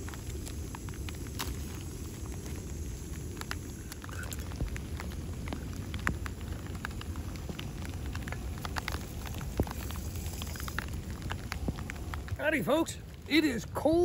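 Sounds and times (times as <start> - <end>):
rain falling: 0.0 - 14.0
raindrops ticking on surfaces: 0.0 - 14.0.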